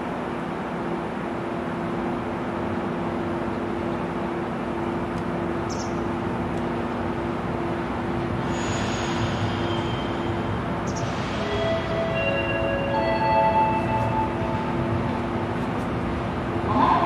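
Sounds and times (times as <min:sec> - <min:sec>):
steady low hum: 0:00.0 - 0:17.0
train approaching over points: 0:00.0 - 0:17.0.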